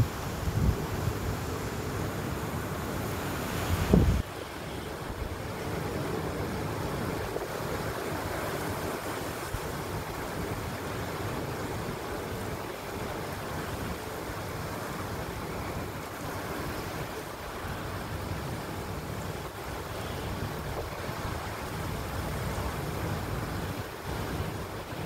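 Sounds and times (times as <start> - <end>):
heavy rain driven by wind: 0.0 - 25.0.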